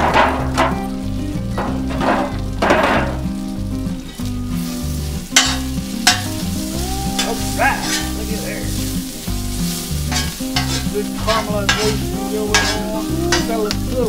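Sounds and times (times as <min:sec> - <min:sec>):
food sizzling in a pan: 0:00.0 - 0:14.0
metal spatula scraping pan: 0:05.4 - 0:06.4, 0:07.2 - 0:13.8.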